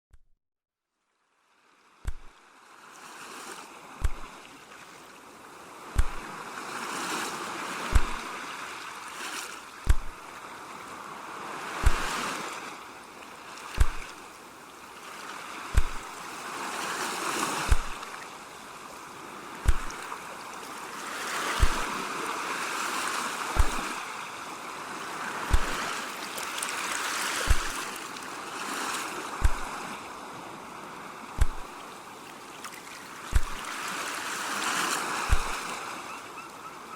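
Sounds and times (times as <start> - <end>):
ocean waves washing in: 1.6 - 36.2
soft low thump: 2.1 - 2.3, 4.0 - 4.3, 6.0 - 6.2, 7.9 - 8.2, 9.8 - 10.2, 11.8 - 12.1, 13.8 - 14.2, 15.7 - 16.1, 17.7 - 18.0, 19.6 - 20.0, 21.6 - 21.9, 23.6 - 23.9, 25.5 - 25.8, 27.5 - 27.8, 29.4 - 29.7, 31.4 - 31.8, 33.3 - 33.6, 35.3 - 35.6.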